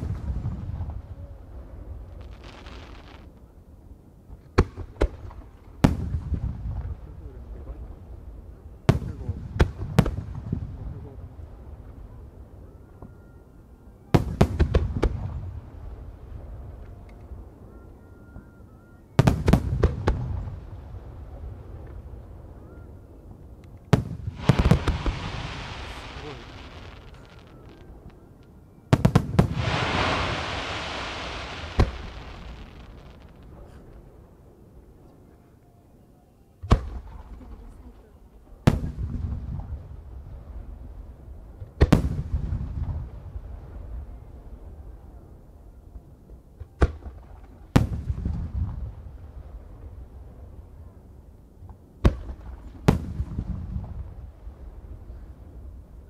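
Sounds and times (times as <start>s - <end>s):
firework booms: 0.0s - 3.3s, 4.5s - 7.1s, 8.8s - 11.5s, 14.2s - 16.5s, 19.2s - 22.5s, 23.9s - 28.2s, 28.9s - 34.3s, 38.6s - 40.9s, 41.8s - 44.0s, 52.0s - 55.4s
firework shells booming: 23.9s - 28.0s, 28.9s - 33.9s
low rumble: 29.4s - 34.4s.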